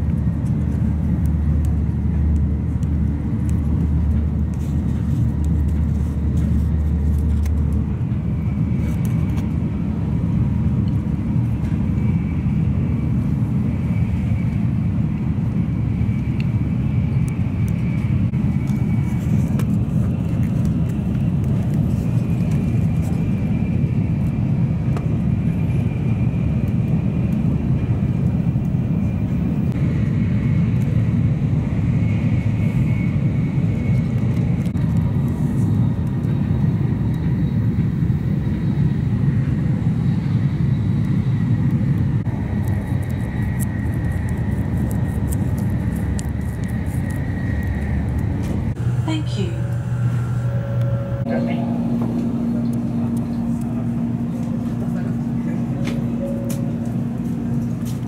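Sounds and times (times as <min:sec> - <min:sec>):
low hum: 0:00.0 - 0:58.0
train cabin low rumble: 0:00.0 - 0:58.0
faint wavering high whine: 0:35.6 - 0:58.0.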